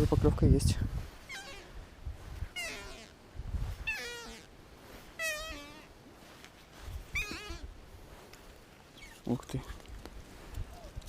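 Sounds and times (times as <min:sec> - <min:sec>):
animal high-pitched wavering cries: 0:01.3 - 0:01.7, 0:02.6 - 0:03.1, 0:03.8 - 0:04.5, 0:05.2 - 0:05.9, 0:07.1 - 0:07.7.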